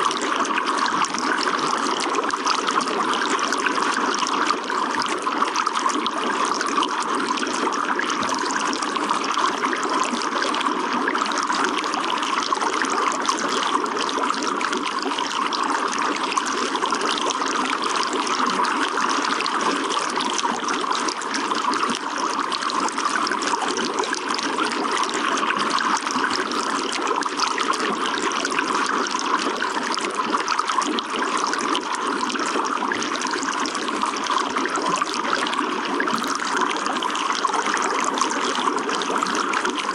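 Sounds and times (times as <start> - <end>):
water running and trickling: 0.0 - 39.9.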